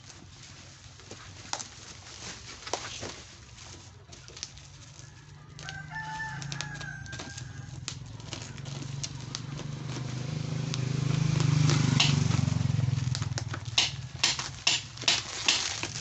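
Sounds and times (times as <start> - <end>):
rooster crowing: 4.9 - 8.1.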